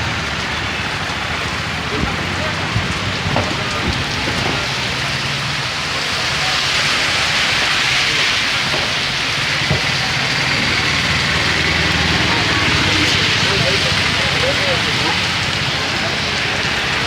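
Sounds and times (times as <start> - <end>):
heavy rain pattering: 0.0 - 17.0.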